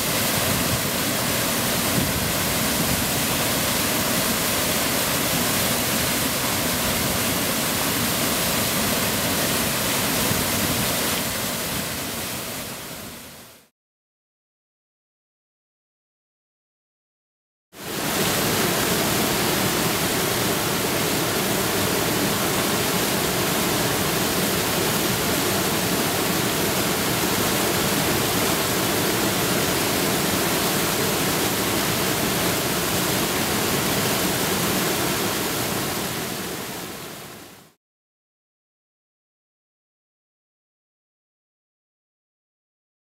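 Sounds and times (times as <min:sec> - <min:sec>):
waterfall pouring: 0:17.8 - 0:36.7.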